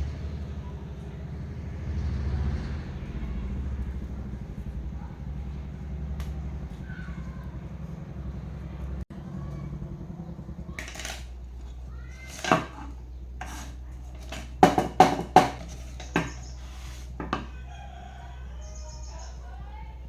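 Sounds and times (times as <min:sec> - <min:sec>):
steady low hum: 0:02.8 - 0:20.0
metal clinks and knocks: 0:10.8 - 0:11.3.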